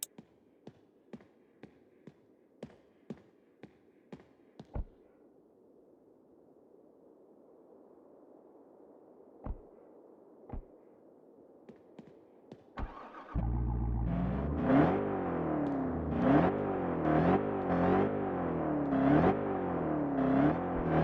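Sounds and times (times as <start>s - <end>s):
car engine starting and revving: 12.8s - 21.0s.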